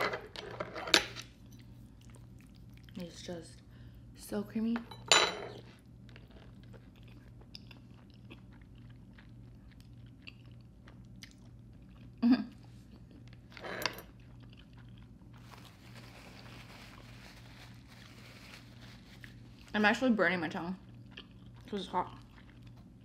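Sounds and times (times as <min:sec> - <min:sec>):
person chewing: 0:05.8 - 0:16.0, 0:20.8 - 0:23.0.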